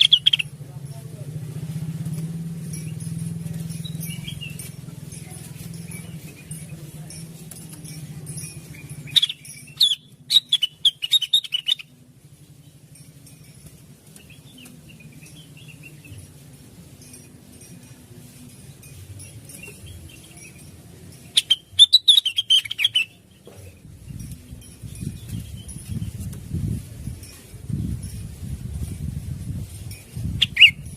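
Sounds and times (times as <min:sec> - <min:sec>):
bird chirping: 0:00.0 - 0:00.6, 0:02.8 - 0:06.8, 0:08.4 - 0:12.0, 0:19.2 - 0:26.2, 0:30.3 - 0:30.9.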